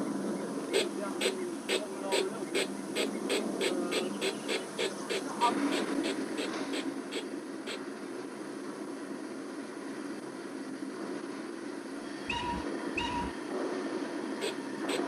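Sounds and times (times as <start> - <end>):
model steam locomotive chuffing: 0.7 - 7.8, 14.4 - 15.0
low hum: 11.9 - 15.0.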